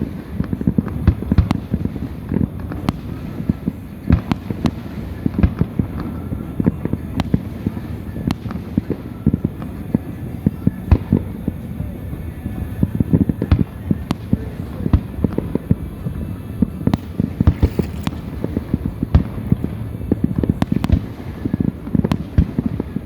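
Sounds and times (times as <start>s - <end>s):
fireworks bangs and crackling: 0.0s - 23.0s.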